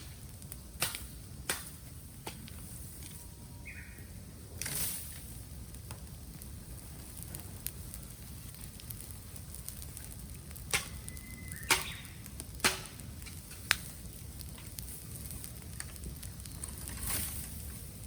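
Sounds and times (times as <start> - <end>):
sharp pops of bursting stalks: 0.0 - 3.1, 4.6 - 18.0
bamboo fire crackling: 0.0 - 18.0
thin whistle: 11.0 - 12.2.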